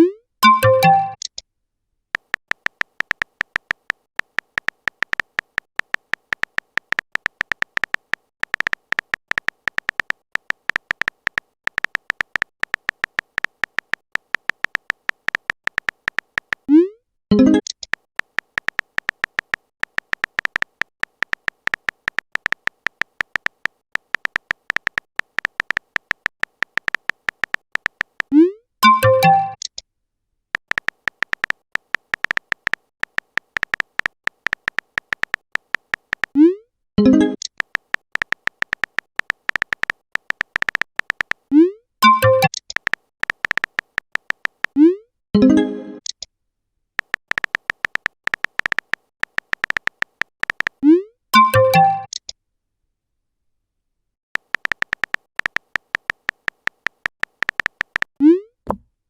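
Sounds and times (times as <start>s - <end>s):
short electronic beeps: 0.0s - 1.2s, 42.0s - 42.6s
rising notification chirp: 0.4s - 1.2s.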